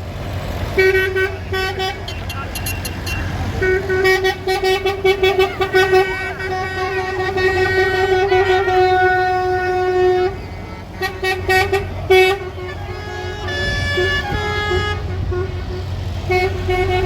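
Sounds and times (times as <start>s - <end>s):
lorry engines rumbling: 0.0s - 17.0s
truck horns: 0.0s - 17.0s.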